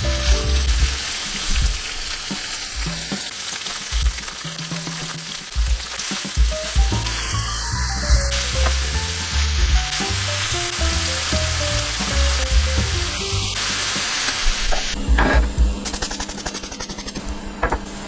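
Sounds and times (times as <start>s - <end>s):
background music with bass line: 0.0s - 1.0s, 6.4s - 14.2s
meat sizzling in a pan: 0.0s - 15.0s.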